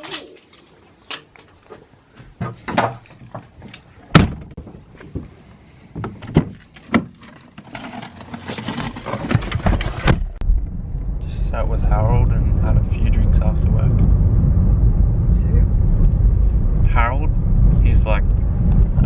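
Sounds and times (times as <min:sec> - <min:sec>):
sharp knocks and thuds: 0:04.1 - 0:05.3, 0:06.0 - 0:07.2
low rumbling noise: 0:09.9 - 0:19.0.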